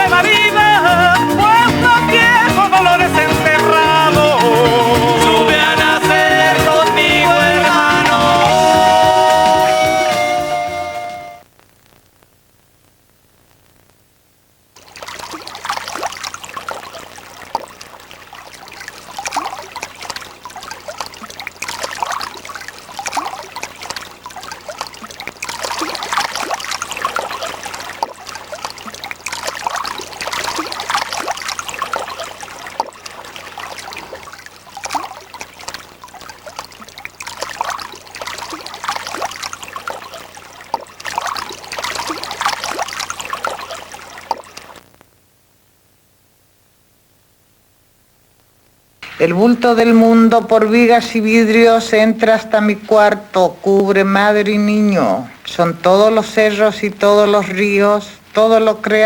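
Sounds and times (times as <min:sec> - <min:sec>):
water trickling and splashing: 0:00.0 - 0:11.4, 0:14.8 - 0:44.9.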